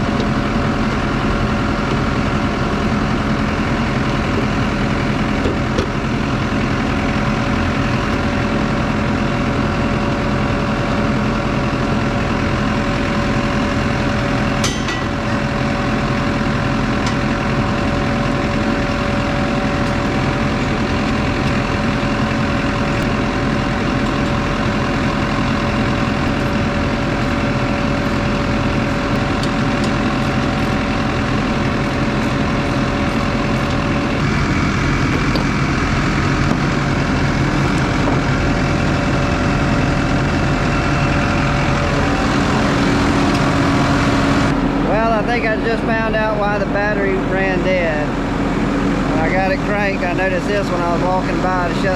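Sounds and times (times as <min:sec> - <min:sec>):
diesel tractor engine idling: 0:00.0 - 0:51.9.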